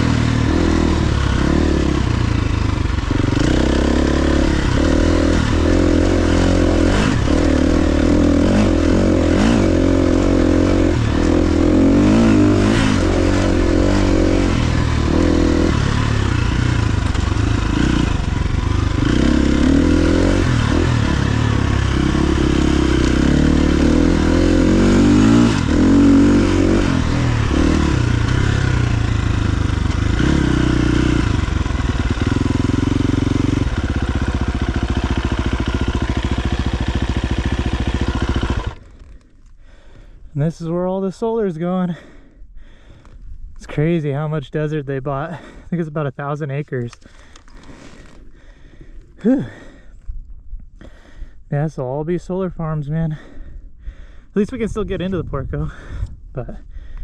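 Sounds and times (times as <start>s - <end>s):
dirt bike engine revving: 0.0s - 39.2s.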